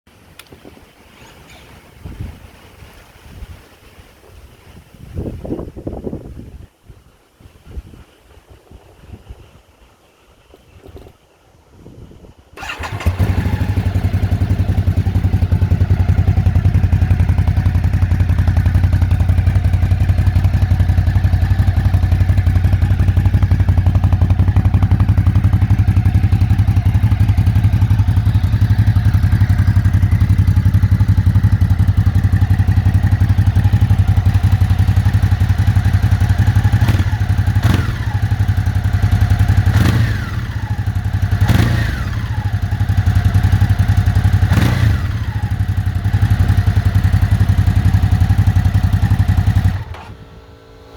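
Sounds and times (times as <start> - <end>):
motorcycle engine idling and revving: 12.6 - 50.9.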